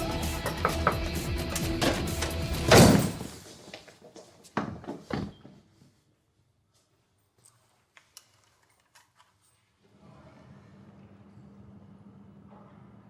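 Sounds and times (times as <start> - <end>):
dull thuds: 0.5 - 3.4.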